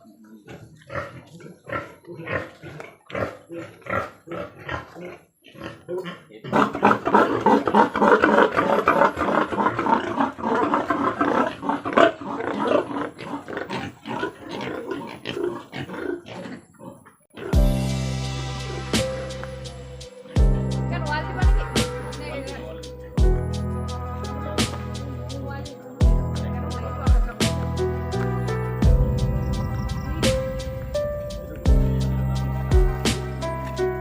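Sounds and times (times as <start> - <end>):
pigs grunting: 0.0 - 17.7
pigs squealing: 0.5 - 17.6.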